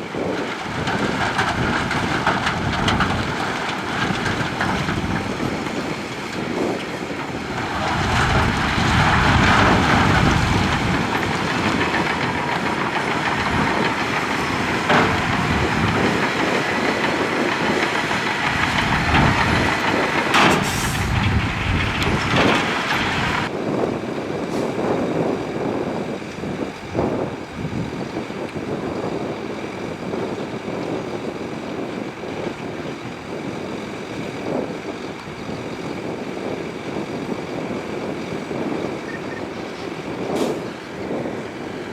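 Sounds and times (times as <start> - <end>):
diesel engine under load: 0.0 - 41.9
rock and steel rattling: 0.4 - 23.5.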